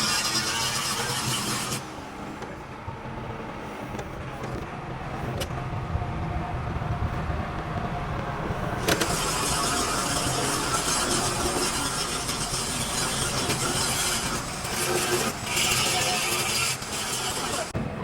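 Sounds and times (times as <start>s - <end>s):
engine rumbling: 1.8s - 16.2s, 16.8s - 18.0s.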